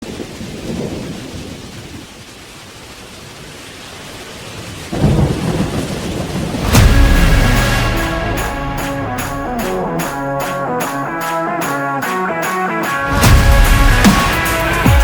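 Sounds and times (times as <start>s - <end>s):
thunder rumbling: 0.0s - 11.2s, 13.1s - 15.0s
steady rain: 0.0s - 15.0s
loud thunder crack: 4.9s - 10.2s.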